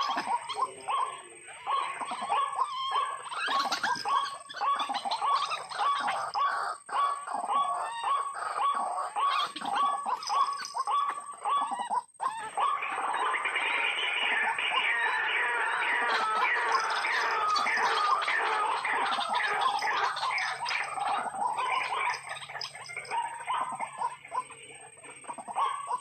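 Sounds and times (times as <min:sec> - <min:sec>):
waterhen harsh calls: 0:00.0 - 0:26.0.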